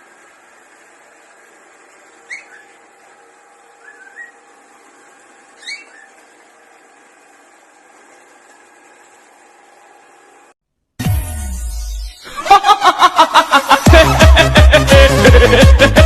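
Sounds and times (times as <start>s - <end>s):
steady hum: 0.0s - 16.0s
parrot chirping whistles: 2.2s - 2.7s, 3.8s - 4.4s, 5.6s - 6.2s.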